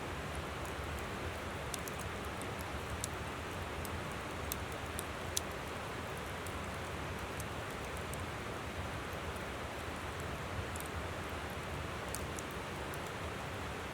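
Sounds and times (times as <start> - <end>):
campfire crackling and popping: 0.3 - 8.3, 10.1 - 13.2.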